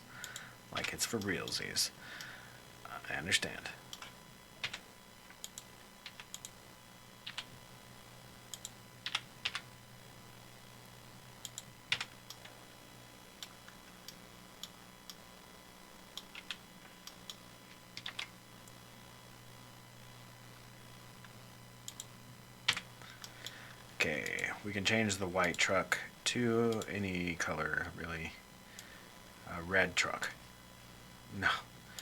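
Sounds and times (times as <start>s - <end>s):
faint low hum: 0.0s - 32.0s
keyboard and mouse clicks: 18.0s - 18.3s.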